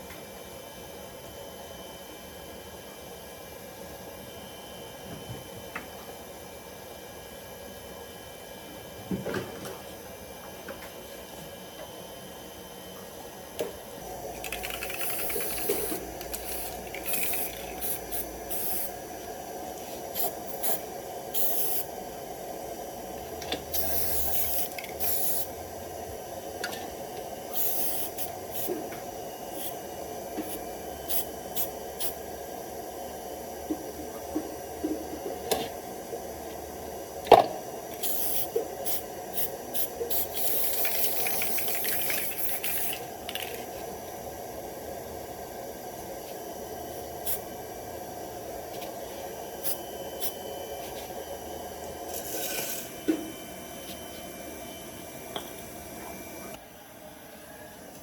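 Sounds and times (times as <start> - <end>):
steady hum: 12.4 - 58.0
short hissing spray bursts: 14.8 - 19.0, 19.8 - 21.9, 23.8 - 25.5, 27.5 - 28.7, 38.0 - 43.0.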